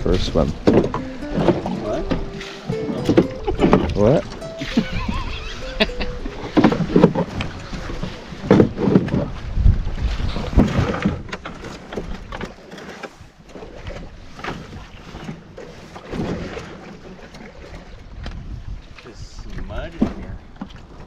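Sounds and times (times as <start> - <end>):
paddles splashing water: 0.0 - 21.0
wind rumble on microphone: 5.1 - 12.5, 17.6 - 21.0.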